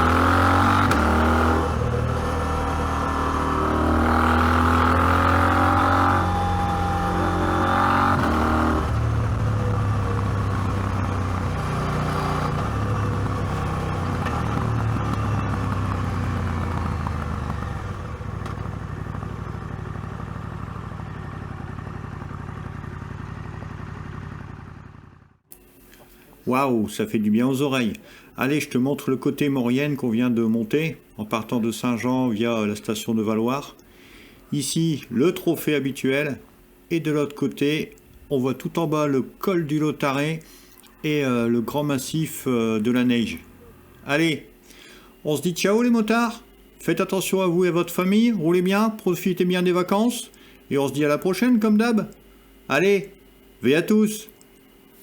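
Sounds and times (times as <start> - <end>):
motorcycle engine shifting gears: 0.0 - 25.6.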